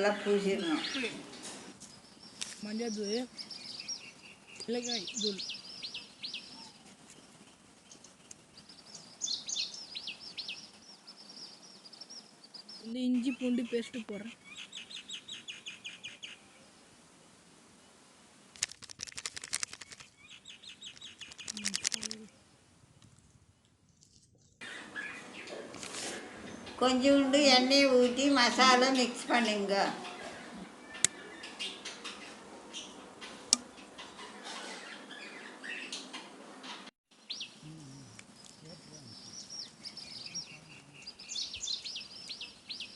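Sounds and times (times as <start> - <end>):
small birds chirping: 0.0 - 16.9, 18.6 - 22.4, 23.4 - 42.9
rapid crackling clicks: 18.5 - 20.2, 20.8 - 22.3
paste crackling: 21.0 - 22.3.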